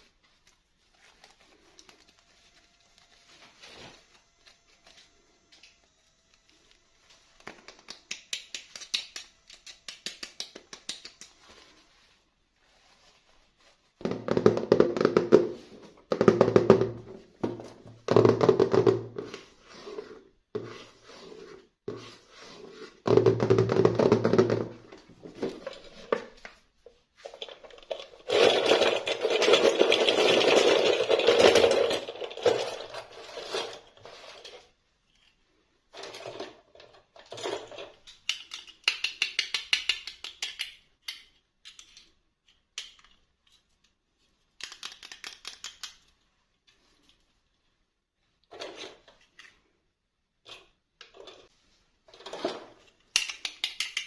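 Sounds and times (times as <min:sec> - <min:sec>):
small plastic clicks: 0:38.0 - 0:44.0, 0:44.6 - 0:46.2, 0:53.0 - 0:54.0.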